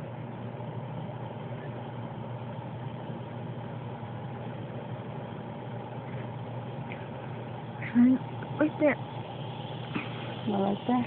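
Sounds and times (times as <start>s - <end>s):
low machine hum: 0.0s - 11.0s
even hiss: 7.9s - 11.0s.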